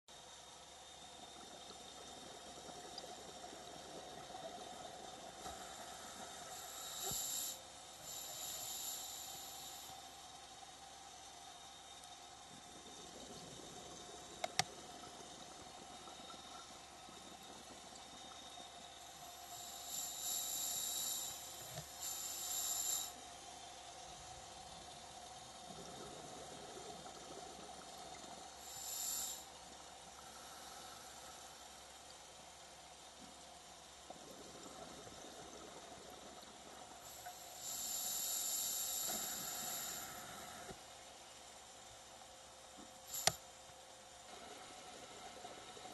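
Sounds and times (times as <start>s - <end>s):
faint underwater background: 0.1s - 45.9s
regulator breathing hiss: 5.3s - 10.1s, 19.1s - 23.2s, 28.6s - 29.6s, 30.2s - 31.9s, 37.0s - 40.8s, 43.1s - 43.4s.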